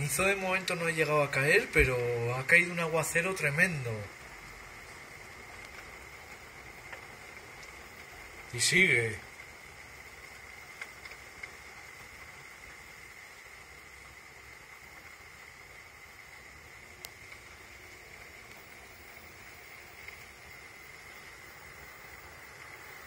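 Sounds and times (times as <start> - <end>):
heavy rain hissing: 0.0 - 23.0
faint tick: 5.5 - 8.1, 10.7 - 11.6, 17.0 - 17.6.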